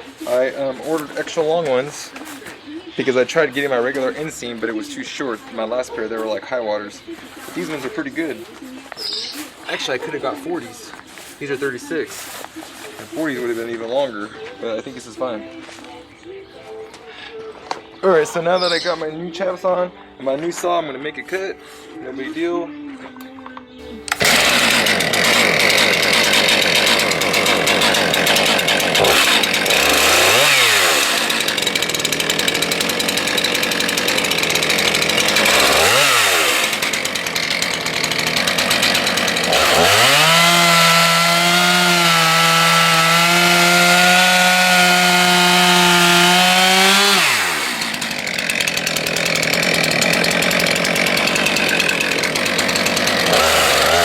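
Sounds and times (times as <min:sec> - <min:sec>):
chainsaw cutting wood: 0:24.0 - 0:54.0.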